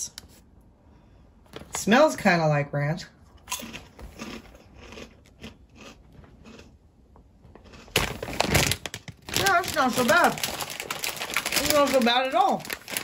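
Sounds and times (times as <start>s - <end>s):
person crunching a crispy snack: 3.4s - 6.8s, 7.5s - 13.0s.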